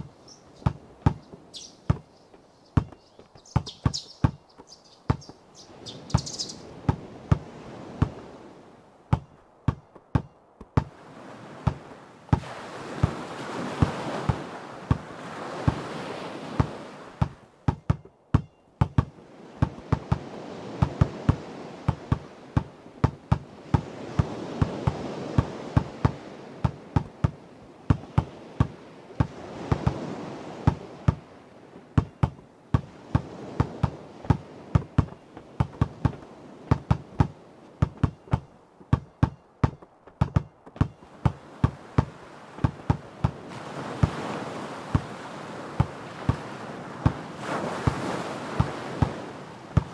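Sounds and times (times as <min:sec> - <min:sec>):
basketball bouncing on hard ground: 0:00.0 - 0:05.4, 0:06.1 - 0:08.2, 0:09.1 - 0:11.0, 0:11.6 - 0:13.2, 0:13.8 - 0:15.1, 0:16.6 - 0:30.0, 0:30.7 - 0:31.2, 0:32.0 - 0:43.4, 0:45.8 - 0:46.4, 0:48.6 - 0:49.2
ocean waves: 0:00.0 - 0:49.9.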